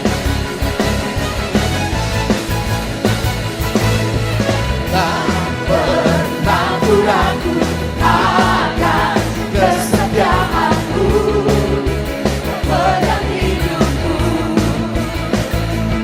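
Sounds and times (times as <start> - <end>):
worship band playing: 0.0 - 16.0
person singing: 4.9 - 12.0.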